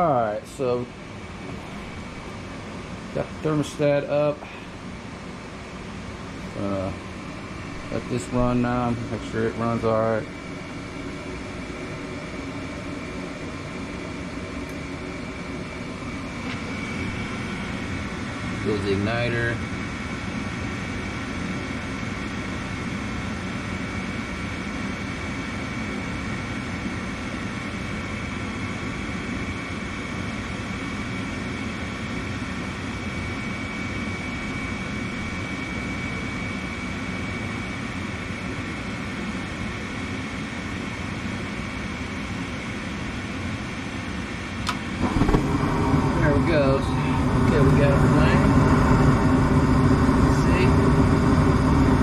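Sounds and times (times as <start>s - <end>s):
faint steady whine: 0.0s - 52.0s
furnace fan whooshing: 14.6s - 19.6s, 44.6s - 52.0s.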